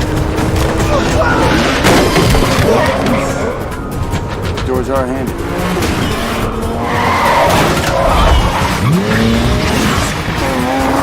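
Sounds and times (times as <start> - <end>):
car engine revving sharply: 0.0 - 11.0
tyres squealing and skidding: 0.0 - 11.0.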